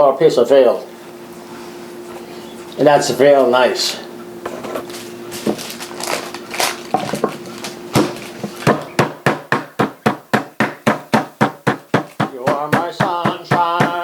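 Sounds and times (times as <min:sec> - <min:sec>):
meat pounding on cutting board: 0:05.4 - 0:14.0.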